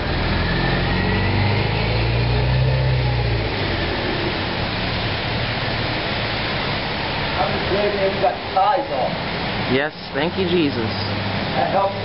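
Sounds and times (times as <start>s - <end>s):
low engine hum: 0.0s - 8.5s
heavy rain hissing: 0.0s - 12.0s.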